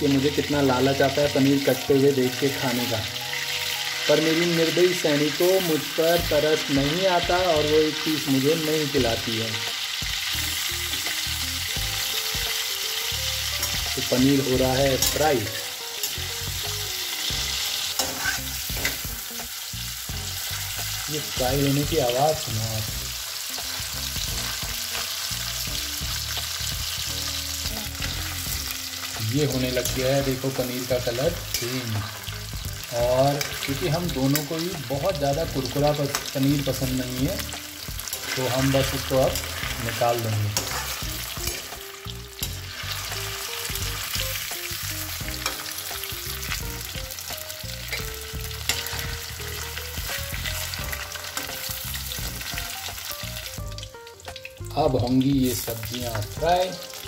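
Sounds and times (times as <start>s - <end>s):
cheese sizzling in oil: 0.0s - 57.0s
spatula scraping and knocking pan: 17.3s - 19.2s, 40.6s - 41.8s
spoon stirring: 17.9s - 18.7s.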